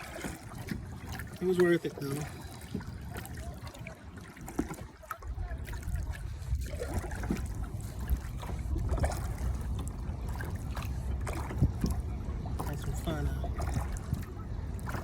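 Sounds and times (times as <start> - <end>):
small splashes: 0.0 - 15.0
water lapping against kayak hull: 0.0 - 15.0
low steady rumble: 5.0 - 15.0.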